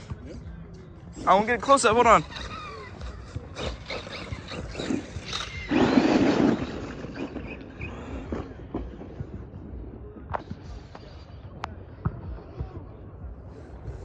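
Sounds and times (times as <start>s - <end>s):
loud rough rush: 1.2s - 9.8s.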